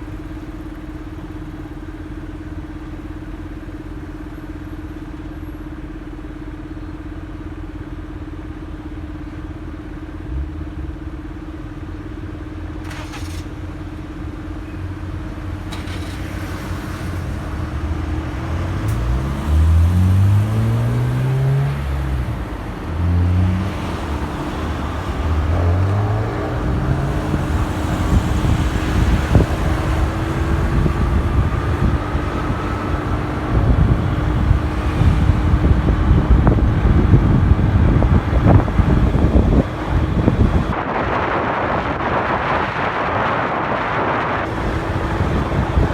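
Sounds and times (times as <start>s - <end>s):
wind and road noise: 0.0s - 45.9s
motorcycle engine: 44.3s - 45.9s.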